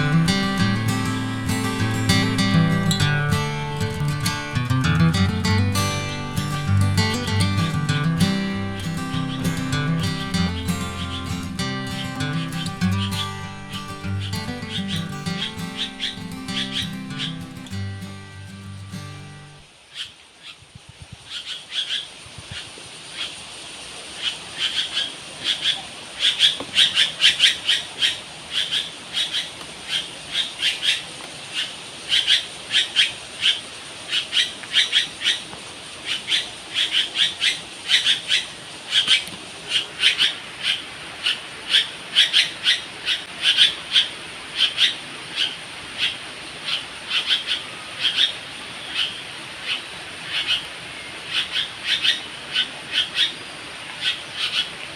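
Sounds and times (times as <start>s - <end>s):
birds chirping: 0.0s - 19.6s
faint high hiss: 0.0s - 24.7s.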